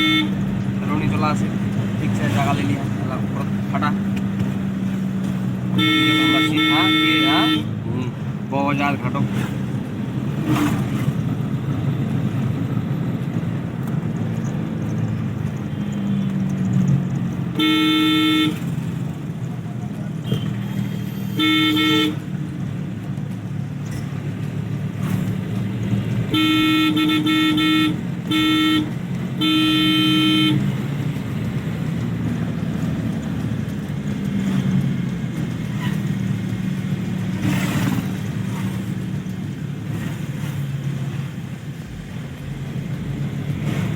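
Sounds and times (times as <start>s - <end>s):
car horn honking: 0.0s - 1.1s, 5.6s - 7.8s, 15.6s - 16.4s, 17.5s - 18.8s, 20.1s - 22.4s, 26.3s - 30.8s
car engine hum: 0.0s - 43.9s
road noise: 0.0s - 43.9s.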